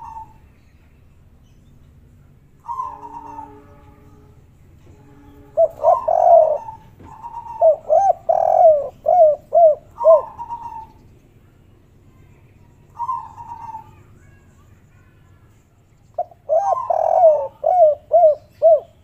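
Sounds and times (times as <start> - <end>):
dove cooing: 0.0 - 0.4, 2.6 - 4.0, 5.2 - 11.0, 12.9 - 14.1, 16.2 - 19.0.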